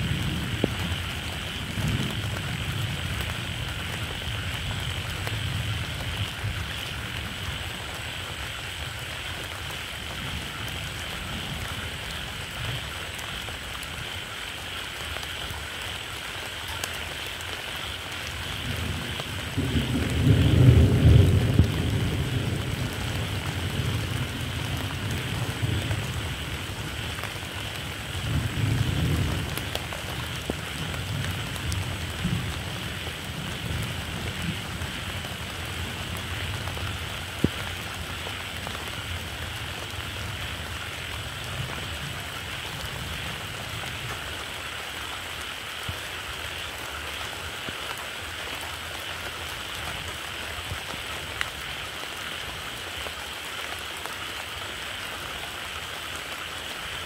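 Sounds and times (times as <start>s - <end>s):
steady rain falling: 0.0s - 57.0s
thunder rumbling: 18.5s - 44.1s.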